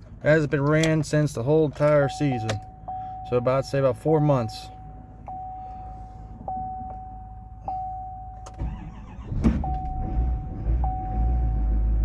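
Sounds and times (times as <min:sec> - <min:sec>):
diesel engine cranking and running: 0:00.0 - 0:12.0
dashboard chime: 0:02.0 - 0:08.6.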